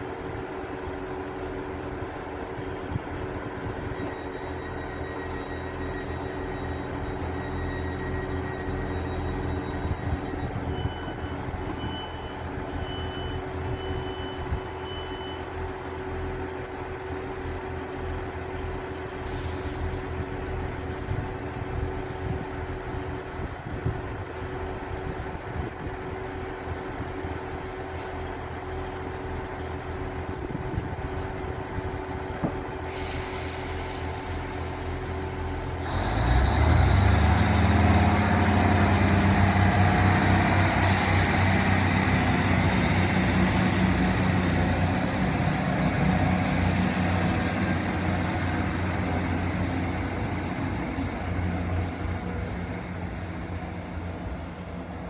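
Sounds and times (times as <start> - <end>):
train engine humming: 0.0 - 14.8, 15.4 - 55.0
air hissing out: 19.2 - 20.5, 32.8 - 35.6, 40.8 - 41.9.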